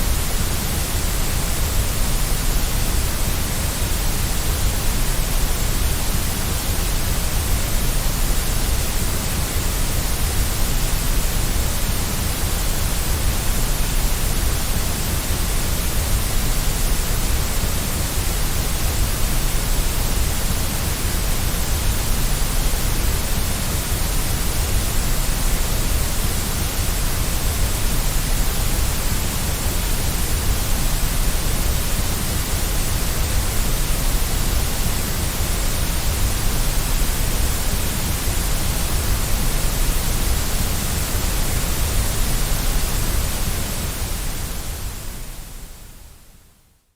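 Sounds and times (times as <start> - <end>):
white noise hiss: 0.0 - 46.9.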